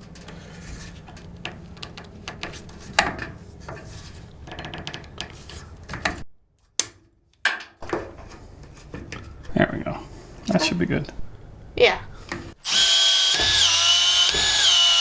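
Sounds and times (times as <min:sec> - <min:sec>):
clicks and rattles of plumbing hardware: 0:00.0 - 0:09.6.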